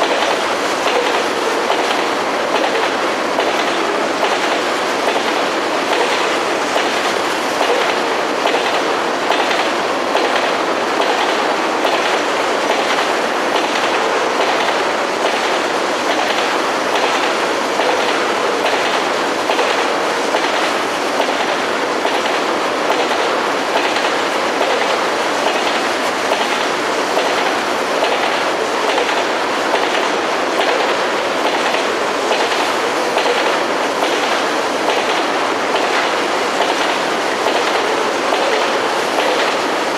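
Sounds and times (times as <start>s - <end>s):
freight train cars rolling: 0.0s - 39.9s.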